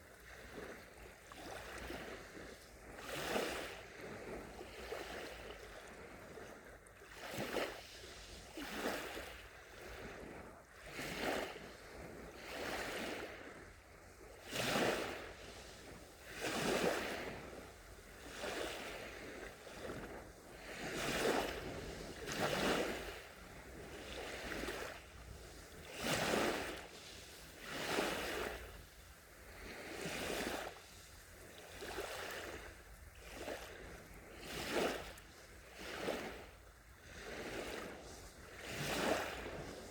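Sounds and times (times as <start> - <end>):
sea waves lapping on shore: 0.0 - 39.9.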